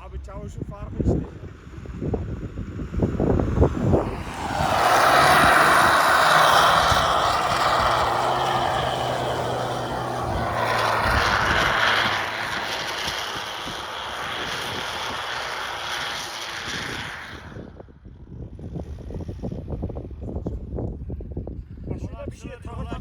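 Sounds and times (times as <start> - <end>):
pickup engine running: 3.0 - 17.5
loud rushing noise: 3.0 - 17.6.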